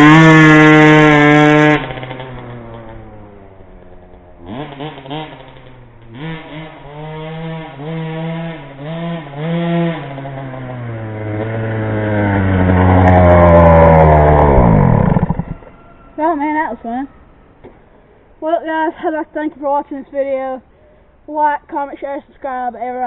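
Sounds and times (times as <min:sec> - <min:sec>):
two-stroke pit bike engine revving: 0:00.0 - 0:15.6.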